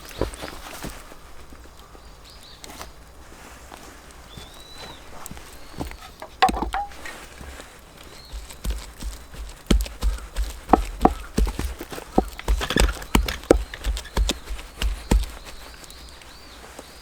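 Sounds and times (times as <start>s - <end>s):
hard objects knocking: 6.2s - 7.1s, 8.3s - 15.6s.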